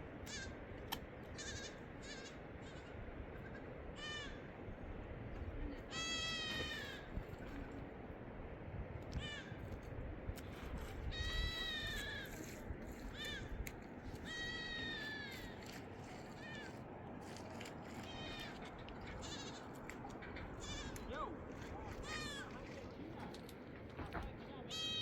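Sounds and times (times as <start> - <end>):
young livestock bleating: 1.4 - 4.4, 5.9 - 7.1, 11.1 - 12.4, 14.2 - 15.7, 18.0 - 19.8, 20.5 - 21.1, 22.0 - 22.5, 24.7 - 25.0.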